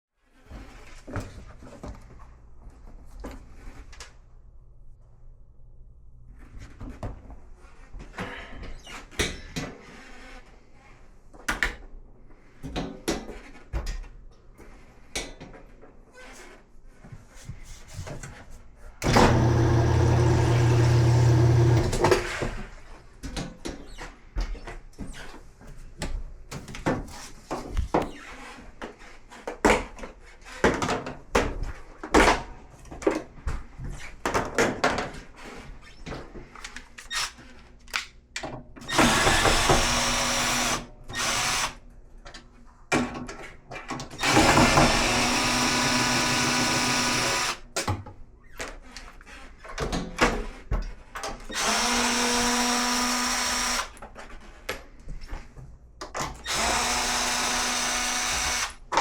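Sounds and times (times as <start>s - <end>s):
power drill driver running: 19.0s - 22.5s, 38.8s - 41.8s, 44.2s - 47.7s, 51.5s - 54.0s, 56.4s - 59.0s.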